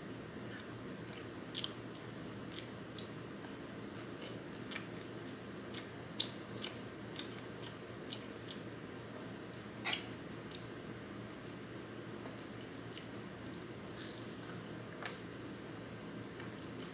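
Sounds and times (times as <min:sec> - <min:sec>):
chewing and crunching food: 0:00.0 - 0:15.2.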